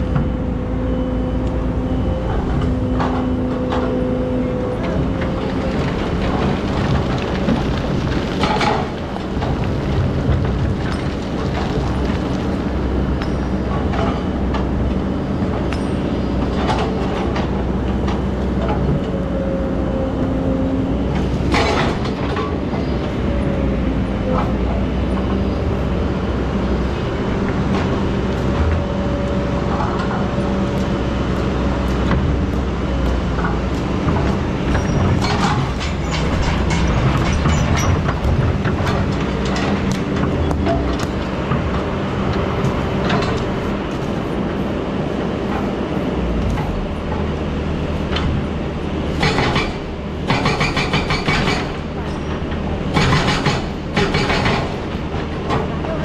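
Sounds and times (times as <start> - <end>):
diesel engine running: 0.0 - 56.0
sharp knocks and clatter: 31.8 - 43.5, 49.1 - 56.0.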